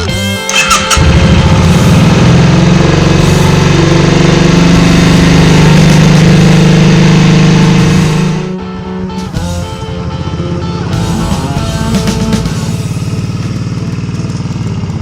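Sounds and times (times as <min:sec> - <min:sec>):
motorcycle engine running: 0:00.0 - 0:15.0
starter clicks: 0:00.4 - 0:01.2.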